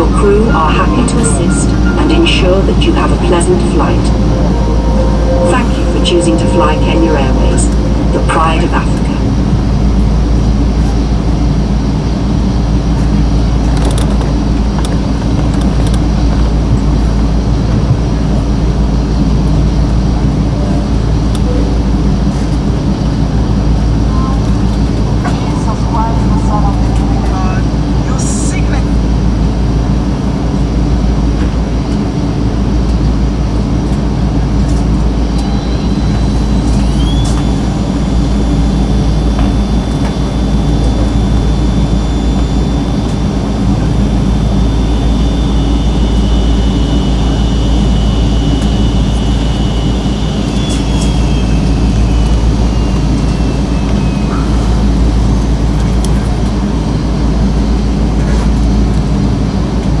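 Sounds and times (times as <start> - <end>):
high whine sliding down: 0.0 - 10.8, 35.0 - 58.1
aircraft cabin low rumble: 0.0 - 60.0.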